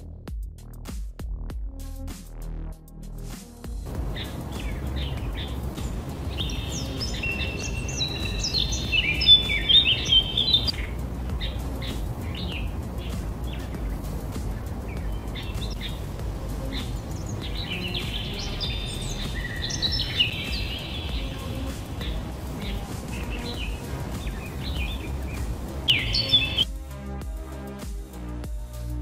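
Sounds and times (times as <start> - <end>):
low outdoor rumble: 3.9 - 26.6
small birds chirping and twittering: 3.9 - 26.8.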